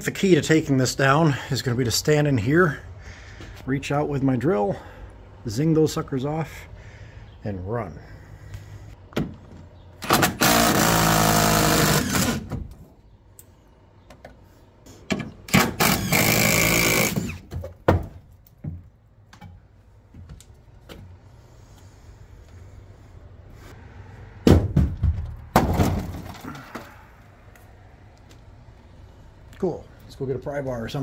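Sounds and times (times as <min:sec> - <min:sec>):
power drill running: 0:10.1 - 0:12.4, 0:15.7 - 0:17.4.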